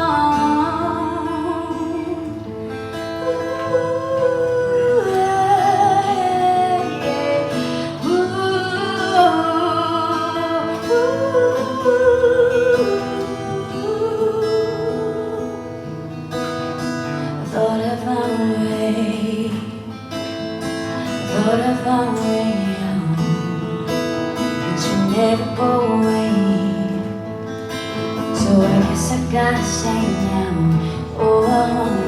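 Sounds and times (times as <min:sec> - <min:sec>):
acoustic guitar: 0:00.0 - 0:32.0.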